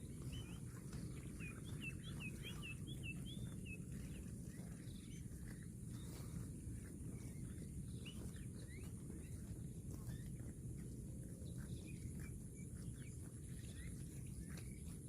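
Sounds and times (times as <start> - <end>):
bird chirps: 0.0 - 4.2.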